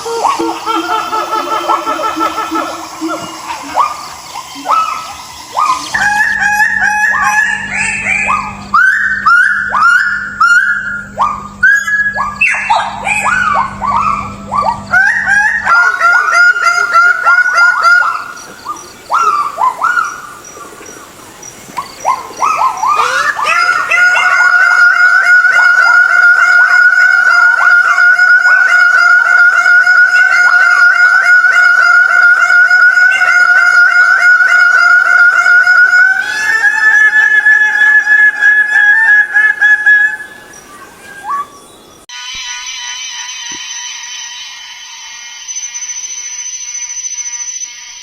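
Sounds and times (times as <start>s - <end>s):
short falling animal calls: 0.0s - 41.7s
long pulsing animal call: 0.0s - 42.0s.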